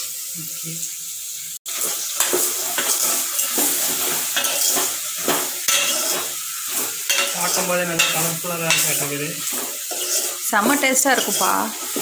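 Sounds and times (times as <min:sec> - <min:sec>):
vegetables sizzling in hot oil: 0:00.0 - 0:12.0
metal ladle scraping a pot: 0:02.2 - 0:12.0.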